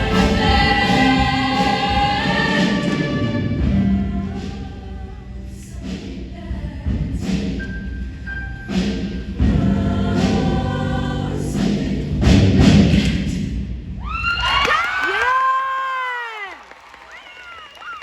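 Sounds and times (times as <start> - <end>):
choir singing: 0.0 - 6.8, 9.4 - 12.5
backing music: 0.0 - 13.9.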